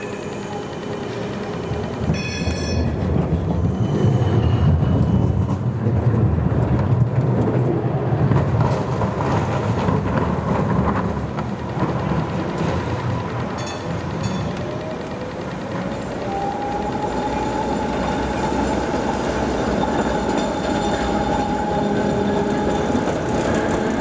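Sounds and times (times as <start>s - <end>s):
high ringing chime: 0.0s - 3.1s
tram rumbling past: 0.0s - 24.0s.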